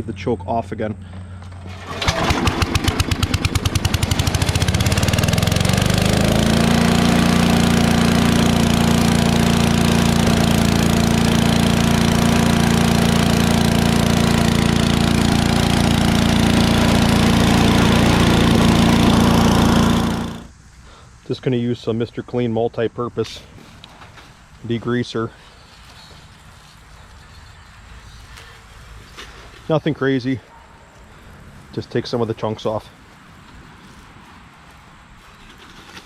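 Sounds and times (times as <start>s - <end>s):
chipper shredder engine running: 1.3s - 20.5s.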